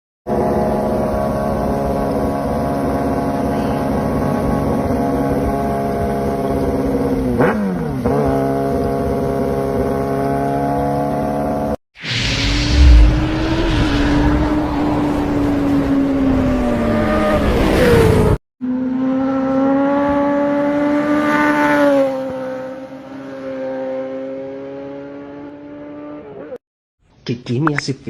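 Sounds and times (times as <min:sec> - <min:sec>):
motorcycle engine running: 0:00.3 - 0:11.8.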